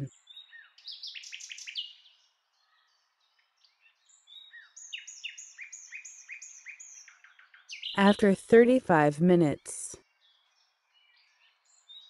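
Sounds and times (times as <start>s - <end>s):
bird chirping: 0.0s - 8.2s.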